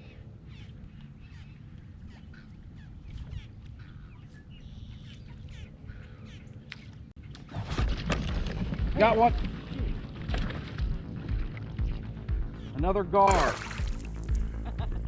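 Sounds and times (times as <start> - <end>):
harsh buzzy bird calls: 0.0 - 7.0
birds chirping: 0.0 - 7.4, 10.8 - 14.6
steady low rumble: 7.5 - 15.0.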